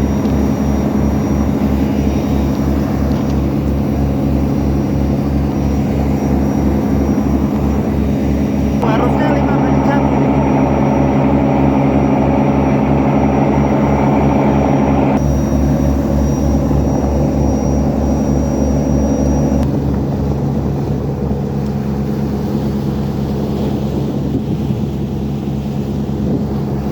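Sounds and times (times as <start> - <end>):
diesel engine throbbing drone: 0.0 - 26.9.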